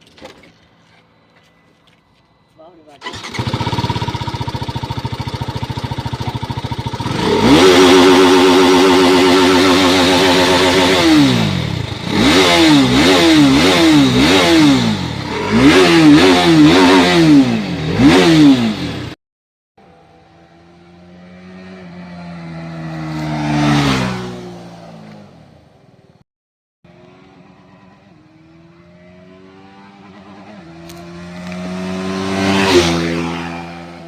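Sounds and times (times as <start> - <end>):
motorcycle engine revving: 3.0 - 19.2, 19.8 - 25.6, 26.9 - 34.0
vehicle engine passing by: 19.8 - 25.5, 26.9 - 34.0.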